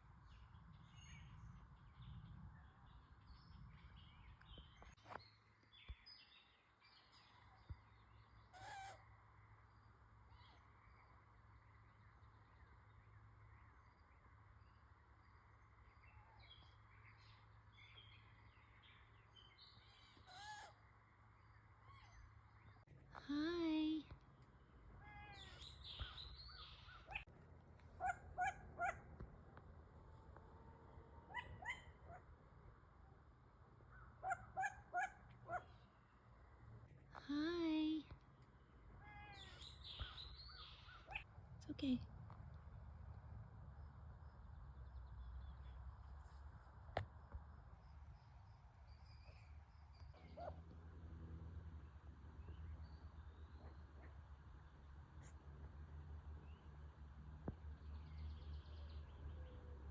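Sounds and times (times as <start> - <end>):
animal calls: 28.0 - 29.1, 30.2 - 32.3, 34.2 - 35.7.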